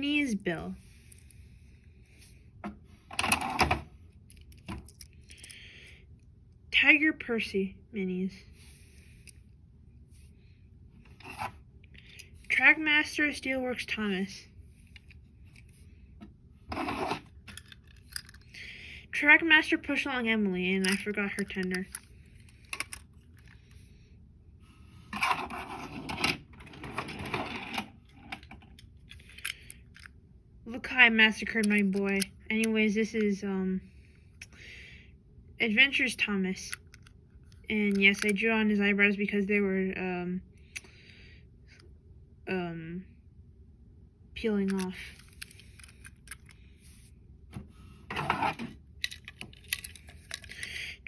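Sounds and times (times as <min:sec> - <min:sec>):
toy trains clattering and scraping: 0:16.7 - 0:18.6, 0:19.9 - 0:23.8, 0:25.1 - 0:30.1, 0:36.6 - 0:38.4, 0:44.7 - 0:47.0, 0:48.1 - 0:50.9.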